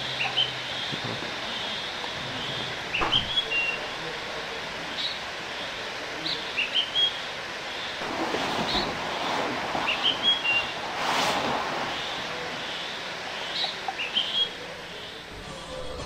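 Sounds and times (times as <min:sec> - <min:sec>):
songbird chirping phrase: 0:02.4 - 0:04.0, 0:11.9 - 0:15.3
rushing noise: 0:08.0 - 0:16.0.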